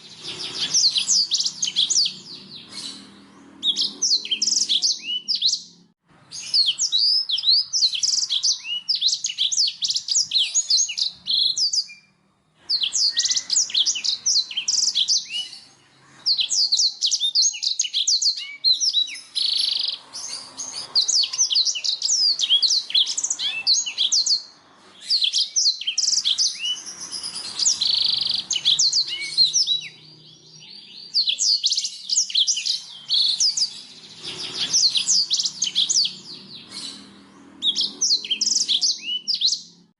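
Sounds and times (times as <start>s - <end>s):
canary twittering song: 0.0s - 39.9s.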